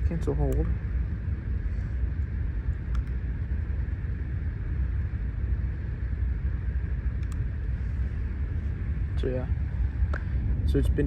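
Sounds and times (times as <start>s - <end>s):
air conditioning unit humming: 0.0s - 11.0s.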